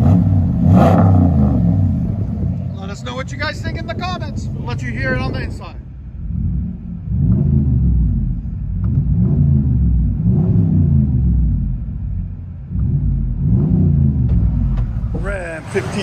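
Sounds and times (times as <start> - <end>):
engine revving: 0.0 - 16.0.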